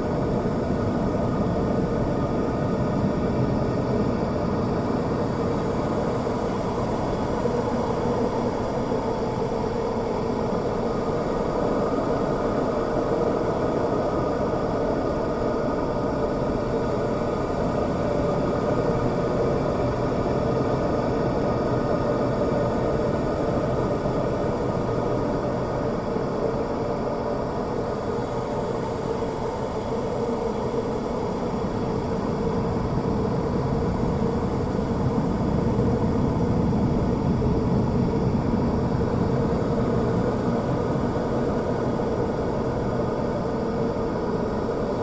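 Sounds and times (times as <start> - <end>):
mechanical hum and hiss: 0.0 - 45.0.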